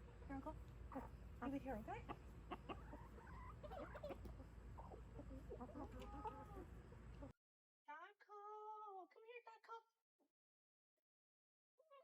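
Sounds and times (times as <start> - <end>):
chickens clucking: 0.0 - 7.4.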